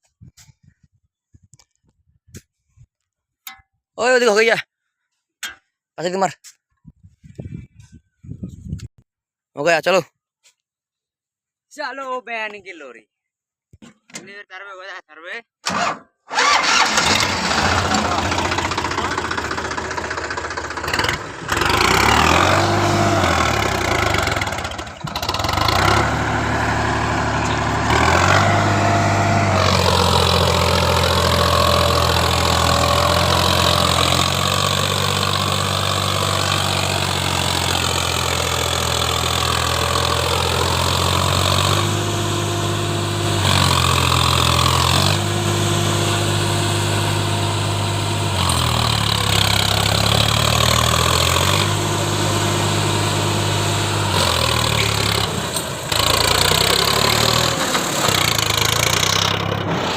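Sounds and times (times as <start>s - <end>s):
tractor diesel engine under load: 15.6s - 59.9s.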